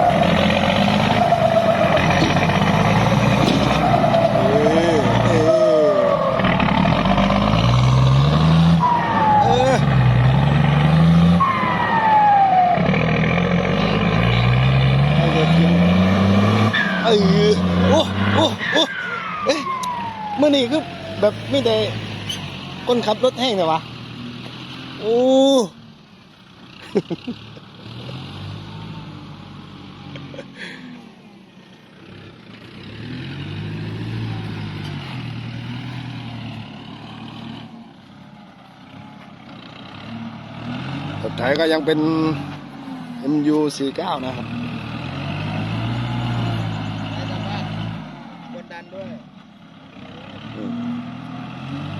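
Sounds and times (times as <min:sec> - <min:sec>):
truck engine revving: 0:00.0 - 0:31.0, 0:31.9 - 0:51.9
high falling whistle: 0:17.9 - 0:22.5.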